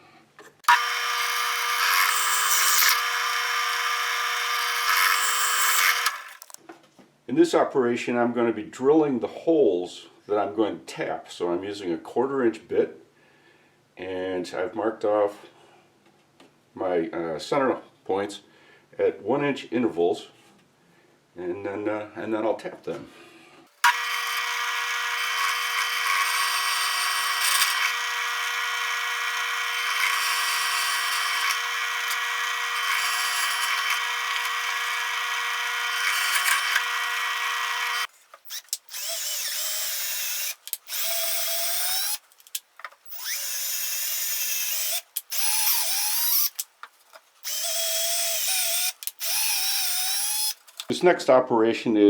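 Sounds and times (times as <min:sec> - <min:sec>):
electric drill drilling wood: 0:00.6 - 0:06.6, 0:23.8 - 0:46.6, 0:47.4 - 0:50.9.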